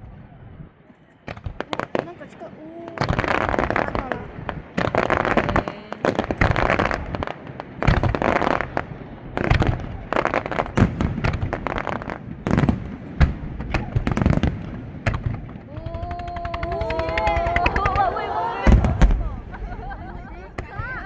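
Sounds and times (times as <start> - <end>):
rising firework whistles: 16.7 - 20.1.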